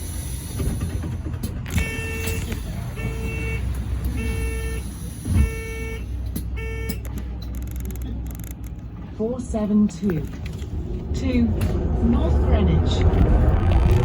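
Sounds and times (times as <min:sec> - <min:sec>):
bus rumbling: 0:00.0 - 0:14.0
electronic warning beeps: 0:01.8 - 0:08.6.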